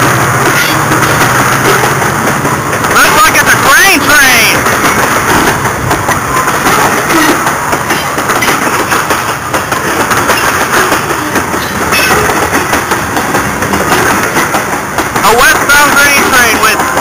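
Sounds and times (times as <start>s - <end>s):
freight train rumbling past: 0.0s - 17.0s
steel wheels clattering on rails: 0.0s - 17.0s.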